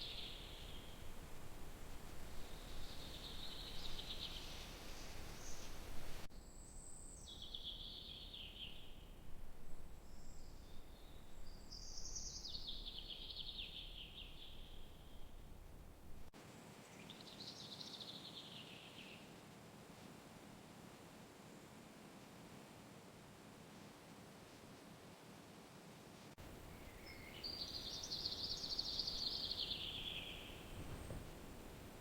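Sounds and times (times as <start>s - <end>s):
songbird trilling: 26.5s - 30.8s.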